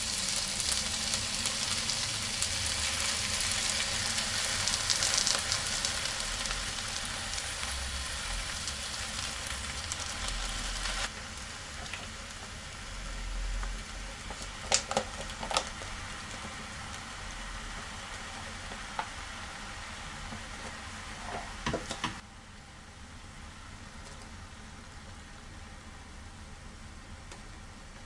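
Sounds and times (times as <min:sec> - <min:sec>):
food sizzling in a pan: 0:00.0 - 0:21.9.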